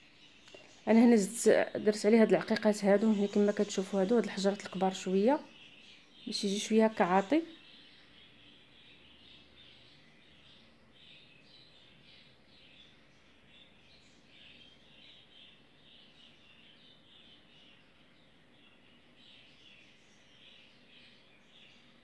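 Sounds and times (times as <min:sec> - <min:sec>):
small birds chirping faintly: 0:00.0 - 0:22.0.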